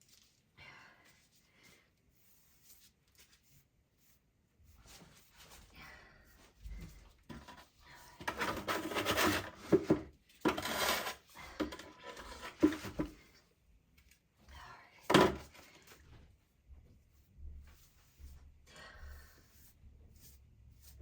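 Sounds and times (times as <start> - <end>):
trowel scraping mortar: 8.2 - 13.1.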